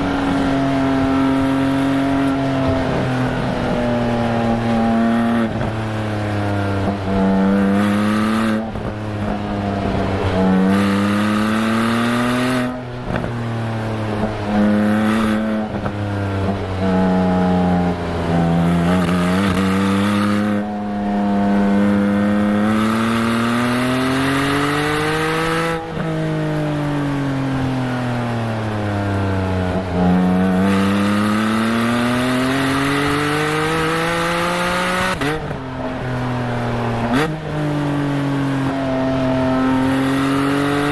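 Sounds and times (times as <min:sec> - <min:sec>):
sports car exhaust with gearshifts: 0:00.0 - 0:40.9.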